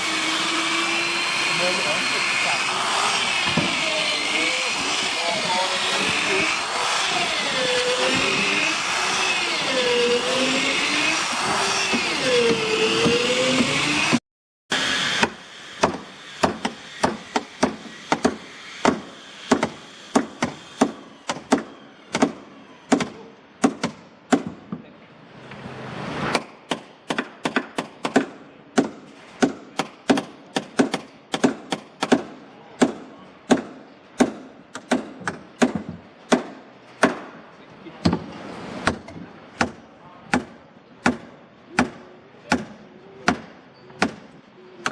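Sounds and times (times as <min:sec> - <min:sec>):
power tool motor running: 0:00.0 - 0:21.3
hammering on wood: 0:15.2 - 0:24.8, 0:26.4 - 0:37.4, 0:38.0 - 0:44.9.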